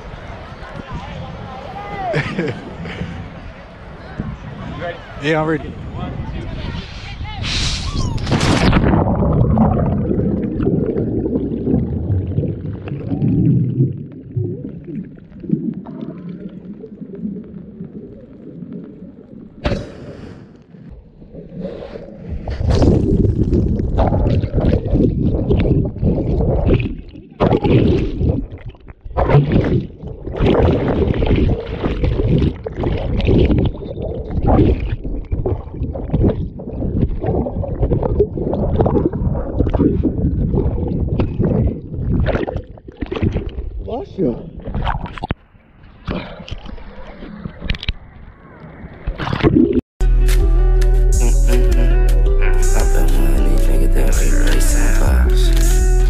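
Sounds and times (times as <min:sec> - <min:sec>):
sea water sloshing: 0:08.2 - 0:43.8.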